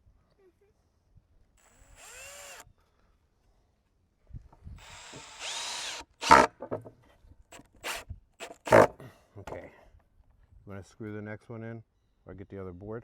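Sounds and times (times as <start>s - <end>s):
power drill driving screw into wood: 1.6s - 2.7s, 4.8s - 6.5s, 7.5s - 9.0s.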